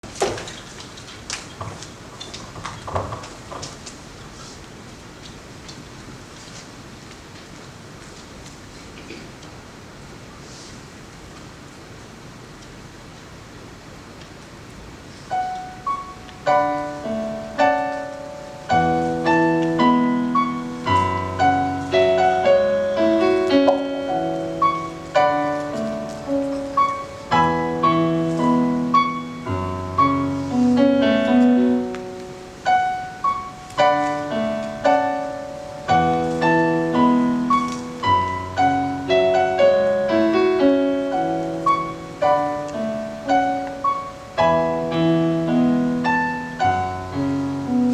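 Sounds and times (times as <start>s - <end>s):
slow solo piano: 14.8s - 47.9s.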